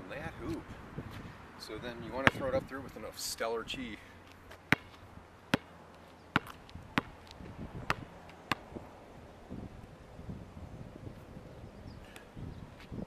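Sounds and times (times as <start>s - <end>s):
basketball bouncing on hard court: 2.2s - 2.5s, 4.7s - 5.7s, 6.3s - 8.7s.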